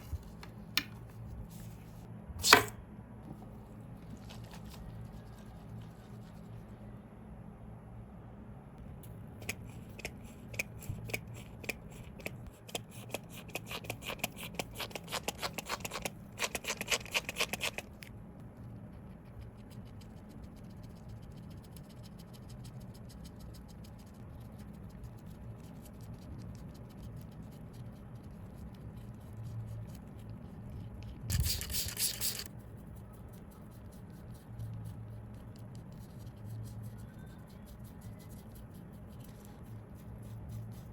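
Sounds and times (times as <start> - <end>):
small clicks and scratches: 9.4 - 18.1, 18.8 - 40.9.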